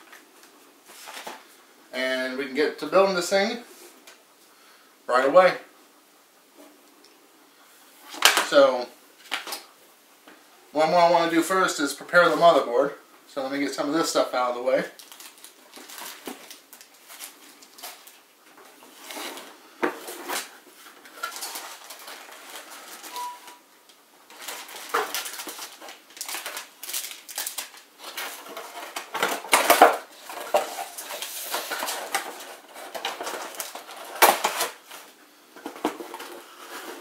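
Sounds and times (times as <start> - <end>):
packaging rustling: 0.0 - 1.5, 15.0 - 23.6, 24.3 - 37.0.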